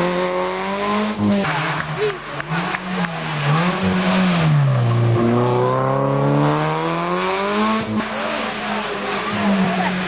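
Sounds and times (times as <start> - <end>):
rally car engine accelerating: 0.0 - 10.0.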